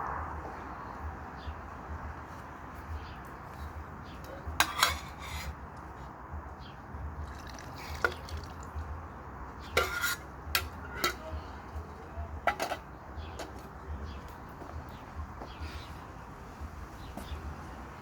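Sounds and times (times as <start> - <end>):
metal cookware clinking: 4.6 - 5.5, 9.7 - 11.4, 12.5 - 12.8.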